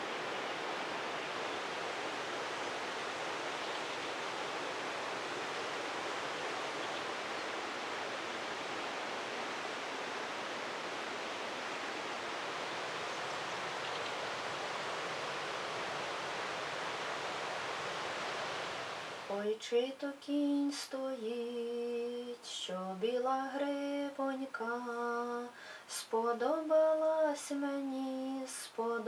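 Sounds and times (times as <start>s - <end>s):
steady water hiss: 0.0s - 24.8s.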